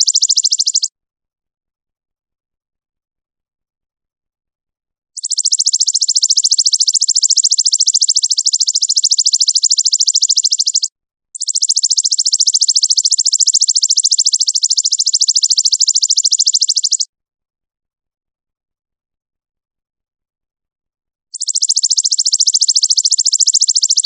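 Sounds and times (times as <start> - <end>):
rapid trill of bird chirps: 0.0 - 0.9, 5.2 - 17.1, 21.3 - 24.0.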